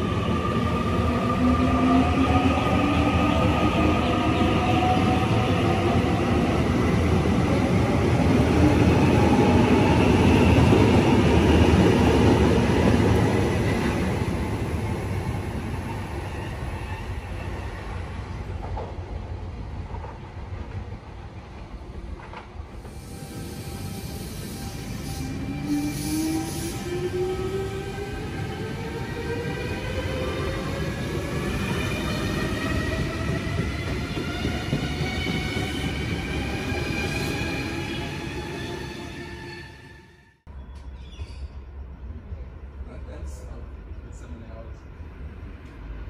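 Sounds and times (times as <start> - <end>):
passenger train rumbling past: 0.0 - 40.4
train whine sliding in pitch: 22.8 - 40.4.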